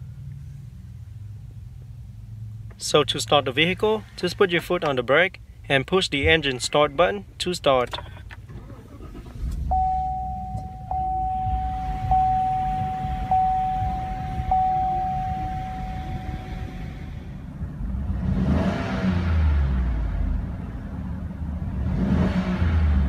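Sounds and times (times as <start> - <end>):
car engine starting and idling: 0.0 - 23.0
dashboard warning chime: 9.7 - 16.8.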